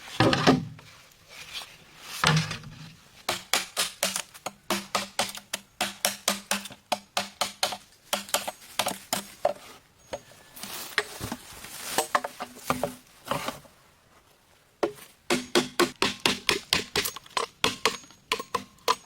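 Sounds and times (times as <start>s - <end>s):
tool knocking on bamboo: 14.8s - 19.0s.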